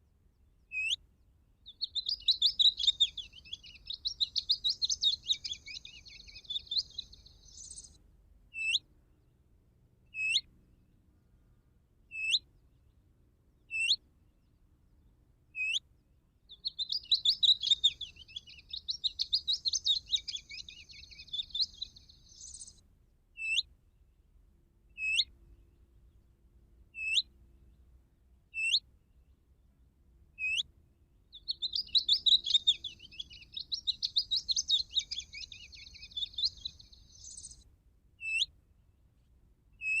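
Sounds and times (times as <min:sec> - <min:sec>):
recorded songbird warbling: 0:00.7 - 0:01.0, 0:01.6 - 0:08.9, 0:10.1 - 0:10.5, 0:12.1 - 0:12.5, 0:13.6 - 0:14.0, 0:15.6 - 0:15.8, 0:16.5 - 0:22.8, 0:23.4 - 0:23.7, 0:24.9 - 0:25.4, 0:26.9 - 0:27.3, 0:28.5 - 0:28.8, 0:30.4 - 0:38.6, 0:39.8 - 0:40.0.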